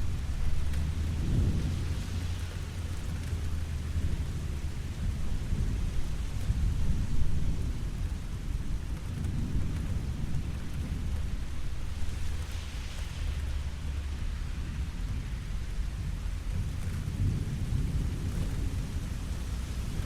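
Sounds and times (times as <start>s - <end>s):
rolling thunder: 0.0s - 20.0s
steady rain falling: 0.0s - 20.0s.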